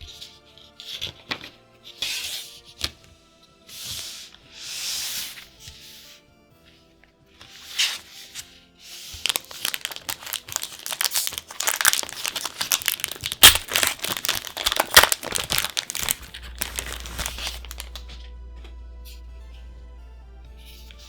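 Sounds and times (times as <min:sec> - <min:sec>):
packaging crinkling and tearing: 0:09.1 - 0:18.2.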